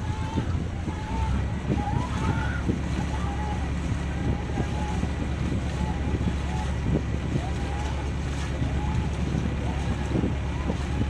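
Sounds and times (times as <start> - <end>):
boat engine drone: 0.0 - 11.0
faint voices: 0.0 - 11.0.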